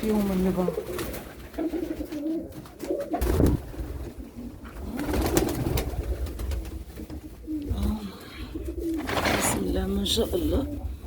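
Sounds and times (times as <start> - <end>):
pigeons cooing: 0.0 - 11.0
clicks and knocks of movement: 9.0 - 9.8.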